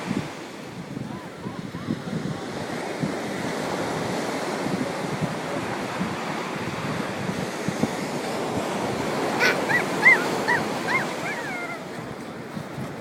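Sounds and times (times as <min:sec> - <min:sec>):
ocean surf washing: 0:00.0 - 0:13.0
wind on microphone: 0:00.0 - 0:13.0
short high rising-and-falling calls: 0:09.4 - 0:11.9.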